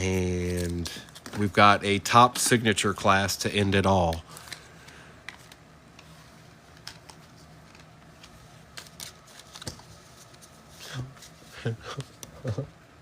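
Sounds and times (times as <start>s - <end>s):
cards and packaging clicking: 6.7s - 9.9s.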